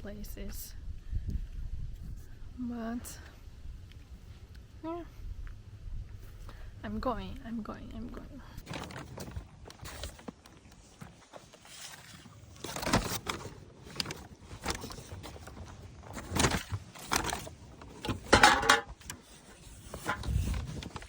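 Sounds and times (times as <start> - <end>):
rustling and knocking: 8.7 - 21.0.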